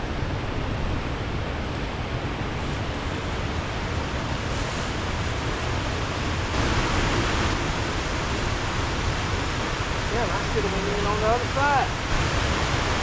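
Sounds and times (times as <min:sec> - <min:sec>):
water rushing off a dam: 0:00.0 - 0:13.0
wind buffeting microphone: 0:00.0 - 0:13.0.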